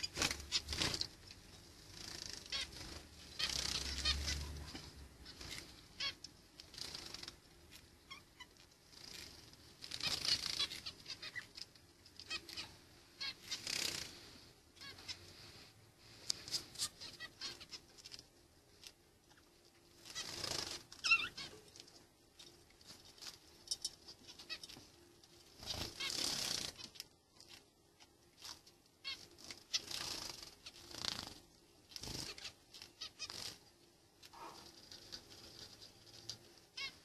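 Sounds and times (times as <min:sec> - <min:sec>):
wing flapping: 0:20.0 - 0:21.5, 0:25.6 - 0:27.0, 0:29.0 - 0:33.6.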